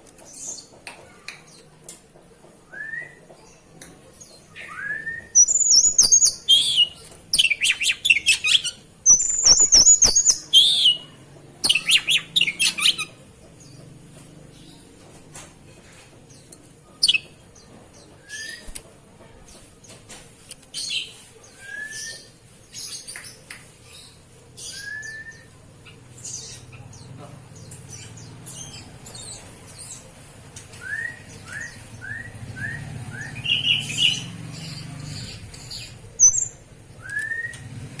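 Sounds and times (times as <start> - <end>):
scratchy bird chirps: 5.4 - 13.2.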